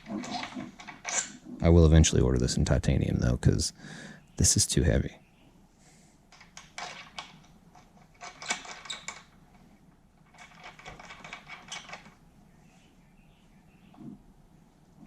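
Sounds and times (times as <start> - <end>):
small metal hardware rattling: 0.0 - 1.5, 6.3 - 12.2.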